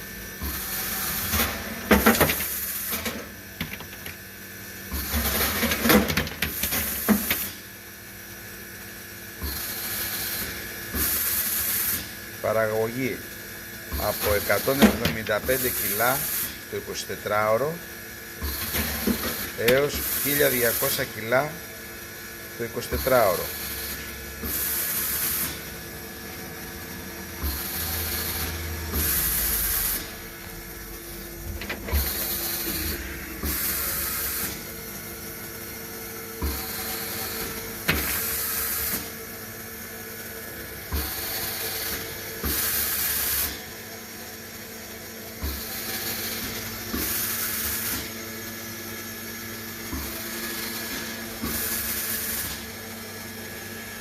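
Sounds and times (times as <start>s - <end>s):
machine humming: 12.5s - 41.9s.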